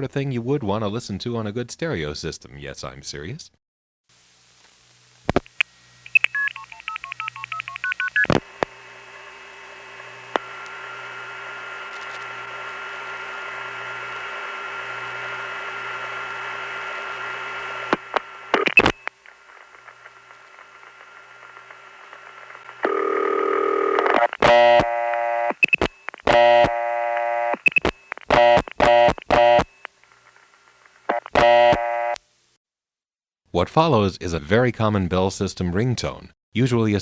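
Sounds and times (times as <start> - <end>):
telephone line hiss: 14.0 - 29.9
steady telephone tone: 22.8 - 29.9, 31.1 - 32.2.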